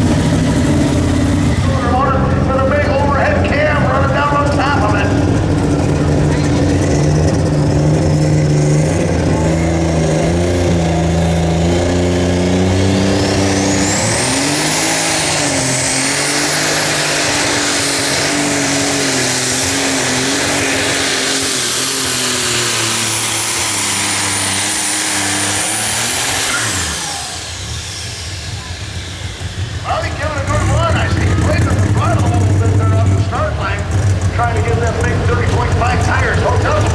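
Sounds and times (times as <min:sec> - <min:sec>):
tractor engine running hard: 0:00.0 - 0:36.9
high turbo whistle: 0:13.1 - 0:30.7.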